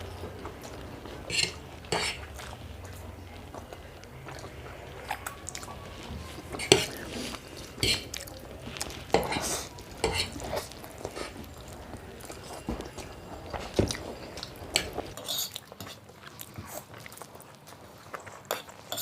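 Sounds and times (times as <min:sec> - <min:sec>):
cutlery clinking on plates: 0:01.2 - 0:02.3, 0:06.4 - 0:07.0, 0:07.8 - 0:08.2, 0:09.1 - 0:16.0, 0:18.5 - 0:19.0.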